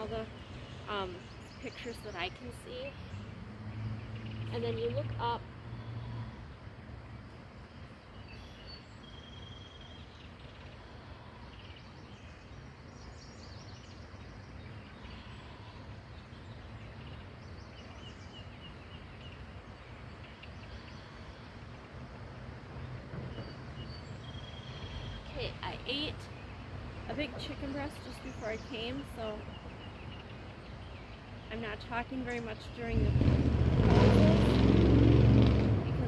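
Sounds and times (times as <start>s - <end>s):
birds chirping and calling: 0.0s - 6.2s, 23.2s - 34.8s
outdoor background hiss: 0.0s - 36.0s.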